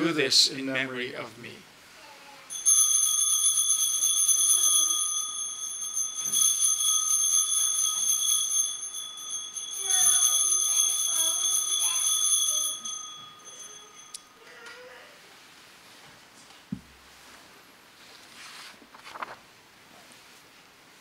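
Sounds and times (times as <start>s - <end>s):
small bells ringing: 2.5s - 15.0s.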